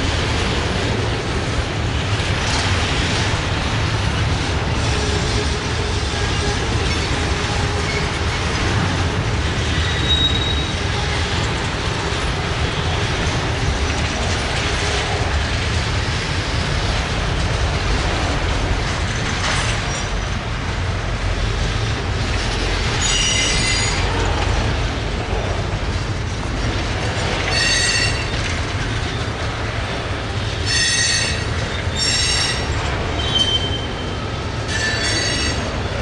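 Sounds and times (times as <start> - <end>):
train wheels rumbling on track: 0.0 - 36.0
high wheel squeal: 9.8 - 10.9, 23.0 - 24.1, 27.5 - 28.4, 30.6 - 35.8.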